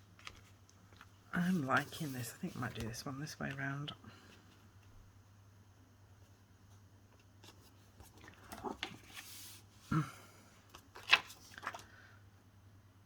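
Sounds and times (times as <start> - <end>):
paper rustling and sliding: 0.2 - 3.0, 7.4 - 9.8.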